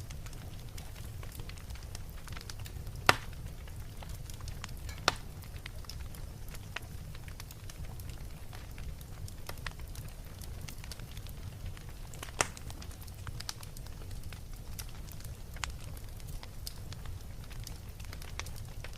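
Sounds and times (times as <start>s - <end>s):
wood fire crackling: 0.0s - 18.9s
loud sharp pops: 3.0s - 3.4s, 5.0s - 5.3s, 12.2s - 12.6s.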